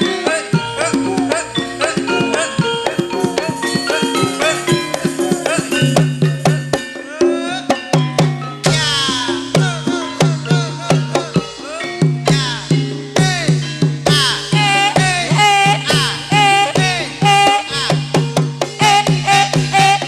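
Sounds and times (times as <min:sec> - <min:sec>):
hand drums in fast rhythm: 0:00.0 - 0:20.0
metallophone notes: 0:00.0 - 0:20.0.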